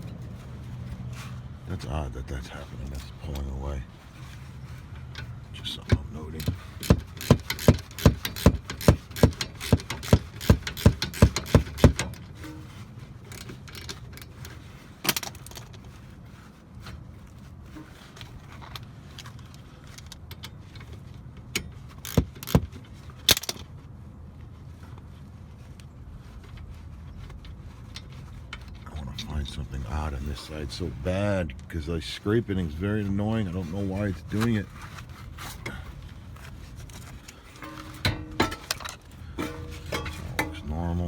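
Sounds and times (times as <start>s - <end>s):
sharp clicks from brake work: 5.0s - 12.6s, 18.2s - 23.7s.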